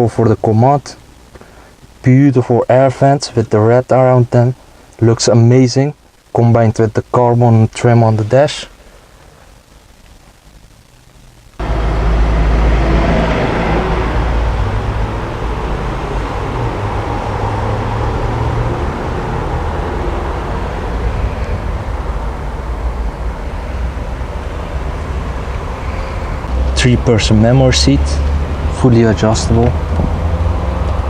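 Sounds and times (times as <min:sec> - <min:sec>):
car engine running: 0:11.6 - 0:27.6.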